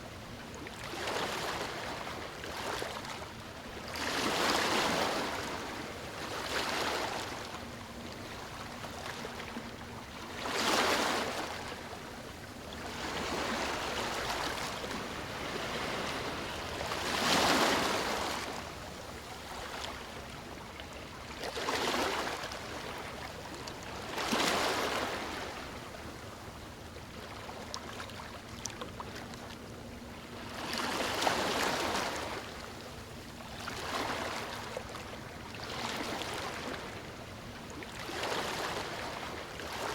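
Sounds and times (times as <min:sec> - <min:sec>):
sea waves breaking on beach: 0:12.9 - 0:18.6.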